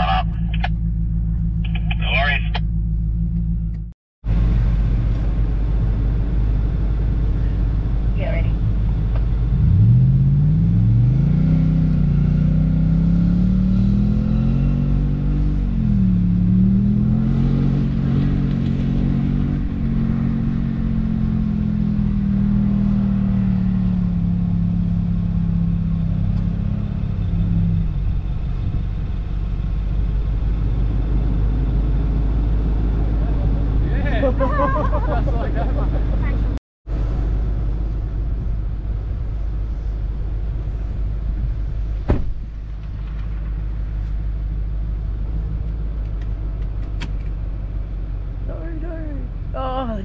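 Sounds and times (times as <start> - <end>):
vehicle engine revving: 0.0 - 39.9
low rumble: 0.0 - 50.0.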